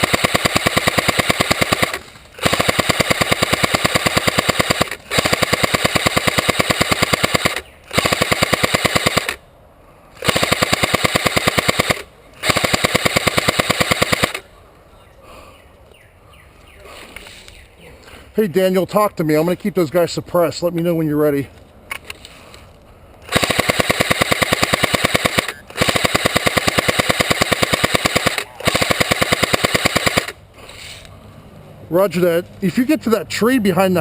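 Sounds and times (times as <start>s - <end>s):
airsoft rifle full-auto bursts: 0.0s - 9.4s, 10.2s - 14.4s, 23.3s - 30.4s.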